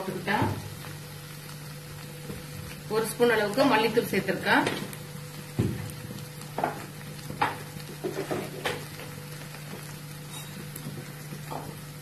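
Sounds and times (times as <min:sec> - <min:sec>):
masala sizzling in a frying pan: 0:00.0 - 0:12.0
wooden spatula knocking on pan: 0:06.5 - 0:08.9, 0:10.8 - 0:11.9.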